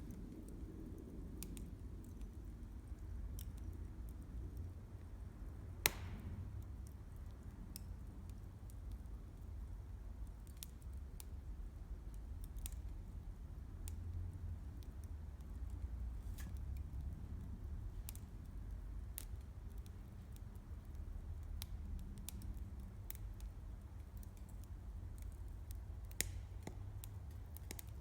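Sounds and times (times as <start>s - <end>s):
low steady fire rumble: 0.0s - 28.0s
campfire crackling and popping: 5.7s - 9.0s, 19.0s - 28.0s.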